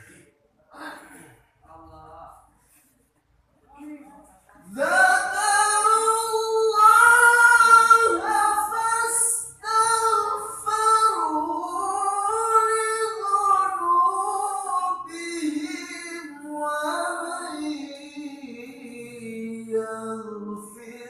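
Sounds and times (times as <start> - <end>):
person reciting melodically: 4.5 - 21.0.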